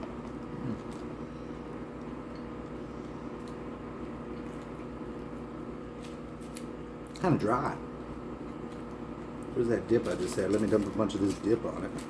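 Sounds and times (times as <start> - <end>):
person chewing food: 0.0 - 5.4
low hum: 0.0 - 9.6.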